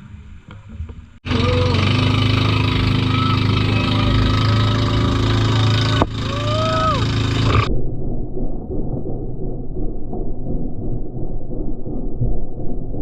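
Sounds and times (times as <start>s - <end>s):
dull low rumble: 1.1s - 13.0s
boat engine running: 1.2s - 7.7s
short gliding tones: 1.3s - 7.7s.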